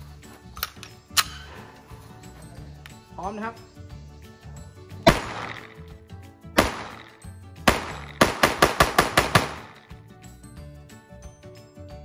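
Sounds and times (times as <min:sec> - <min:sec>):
background music: 0:00.0 - 0:12.0
pistol shots: 0:05.0 - 0:05.9, 0:06.6 - 0:10.0.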